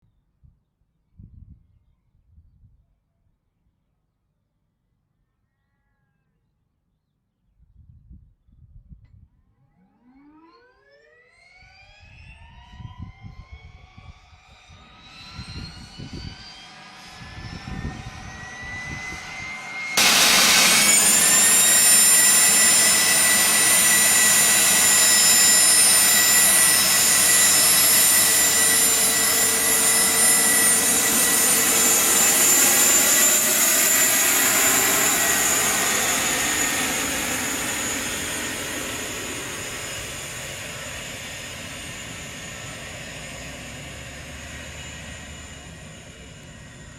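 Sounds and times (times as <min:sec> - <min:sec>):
jet engine whine: 0:09.8 - 0:46.9.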